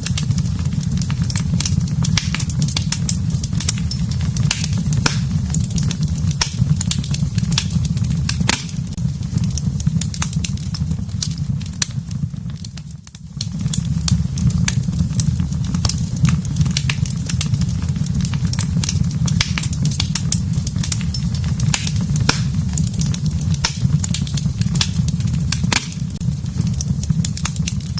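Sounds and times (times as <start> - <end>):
steady low rumble: 0.0 - 11.2, 17.5 - 27.9
sharp pops of fire: 0.0 - 27.9
wood fire crackling: 0.0 - 27.9.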